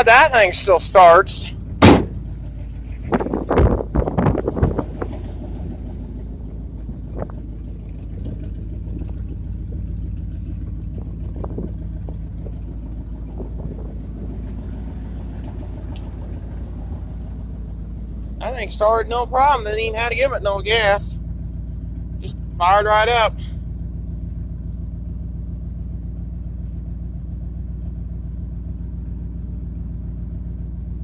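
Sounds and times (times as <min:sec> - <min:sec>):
engine knocks and clatters: 0:00.0 - 0:31.0
truck engine idling: 0:00.0 - 0:31.0.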